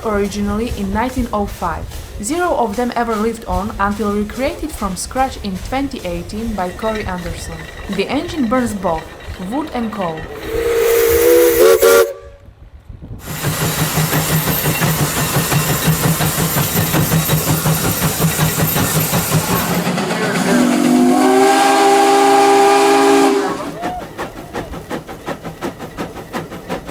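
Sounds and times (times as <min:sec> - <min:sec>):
steam engine hissing: 0:00.0 - 0:12.4, 0:13.2 - 0:26.9
steam exhaust chuffs: 0:00.0 - 0:12.4, 0:13.2 - 0:26.9
steam whistle chord: 0:10.4 - 0:12.4, 0:20.2 - 0:23.9.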